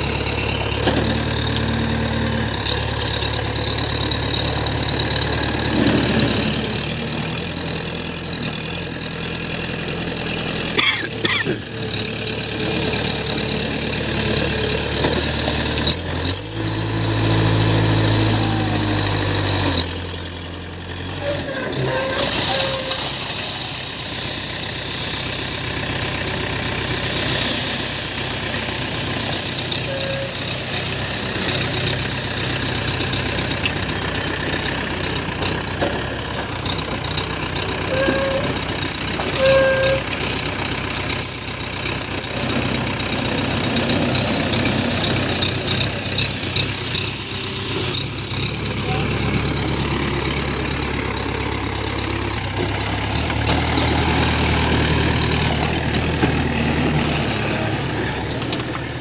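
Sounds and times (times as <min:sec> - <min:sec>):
heavy diesel engines running: 0:00.0 - 0:59.0
voices: 0:43.9 - 0:52.1.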